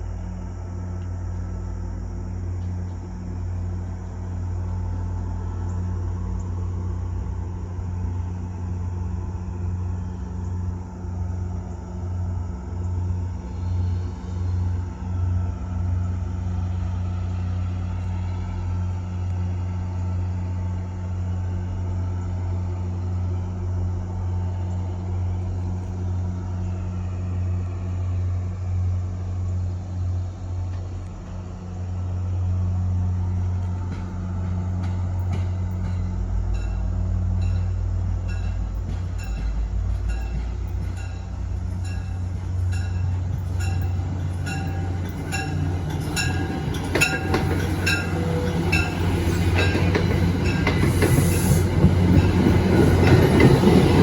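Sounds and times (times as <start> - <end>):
diesel engine drone: 0.0 - 54.0
train wheels clicking over rail joints: 33.4 - 54.0.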